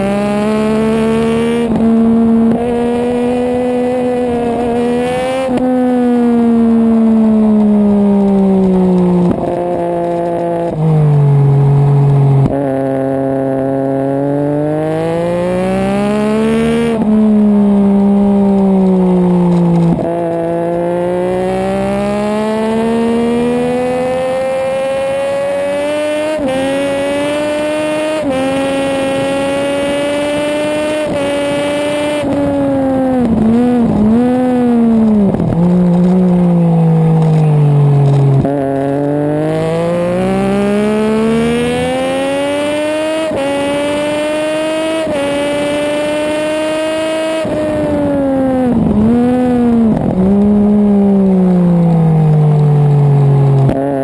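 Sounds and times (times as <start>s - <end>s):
race motorcycle engine revving: 0.0s - 54.0s.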